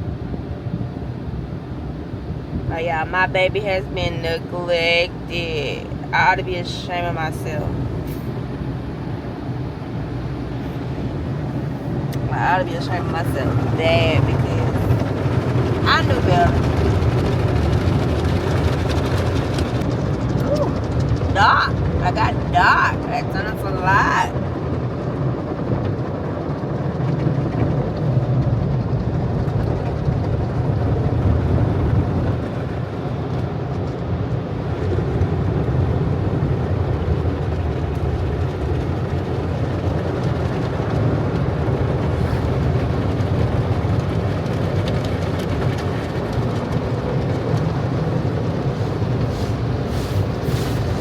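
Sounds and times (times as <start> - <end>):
car wash machinery running: 0.0 - 51.0.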